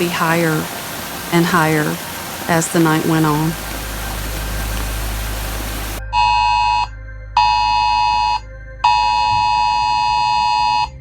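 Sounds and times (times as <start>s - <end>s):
steady rushing noise: 0.0s - 6.0s.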